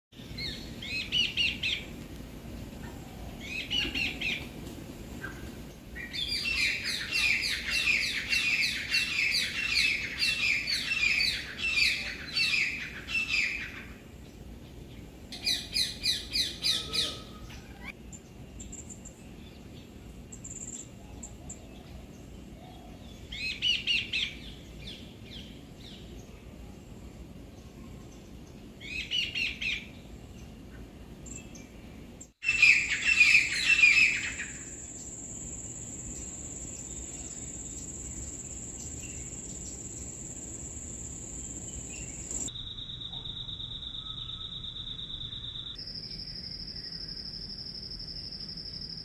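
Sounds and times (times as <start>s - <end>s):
small birds chirping: 27.5s - 45.9s.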